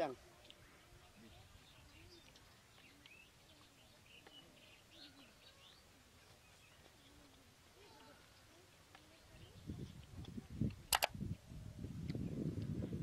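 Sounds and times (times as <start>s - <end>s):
faint bird chirps: 0.4s - 10.0s.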